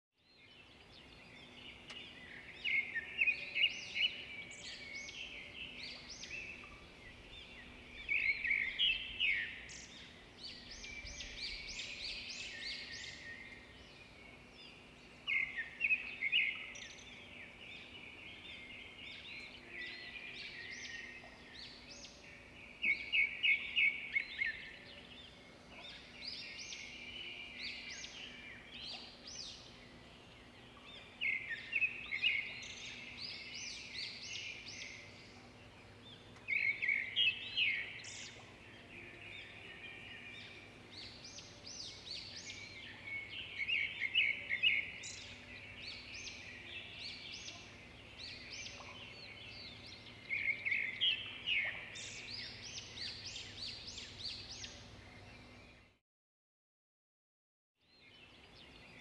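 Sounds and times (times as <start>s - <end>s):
songbirds chirping and trilling: 0.2s - 56.0s, 57.8s - 59.0s.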